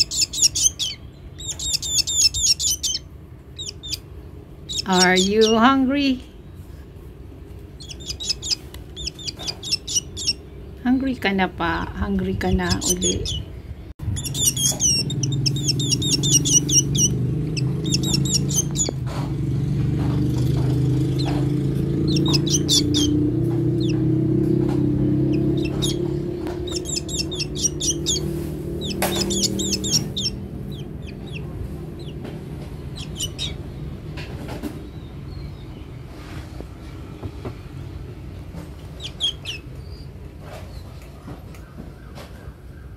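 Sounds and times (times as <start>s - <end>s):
bird rapid high chirps: 0.0s - 5.8s, 7.8s - 10.6s, 12.4s - 19.0s, 21.1s - 24.1s, 25.1s - 34.1s, 38.9s - 40.2s
steady low hum: 0.0s - 41.5s.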